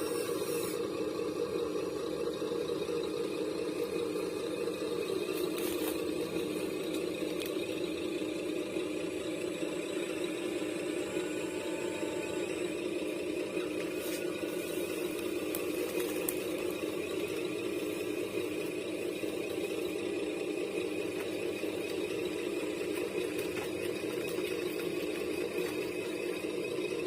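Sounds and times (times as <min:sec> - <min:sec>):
small motor humming: 0:00.0 - 0:27.0
faint clicks: 0:06.9 - 0:07.8.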